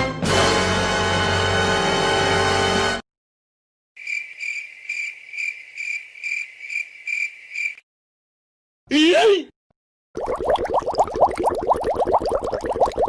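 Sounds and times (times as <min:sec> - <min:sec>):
cricket chirping: 0:04.0 - 0:07.8.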